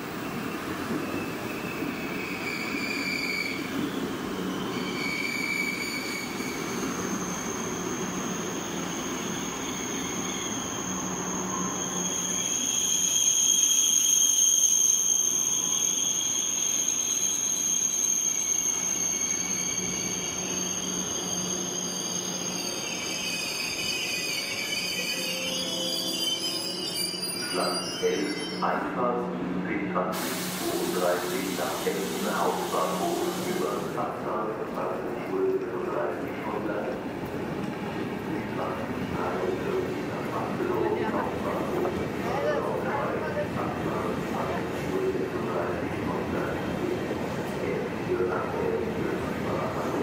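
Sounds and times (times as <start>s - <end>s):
high-pitched wheel squeal: 4.4s - 28.6s.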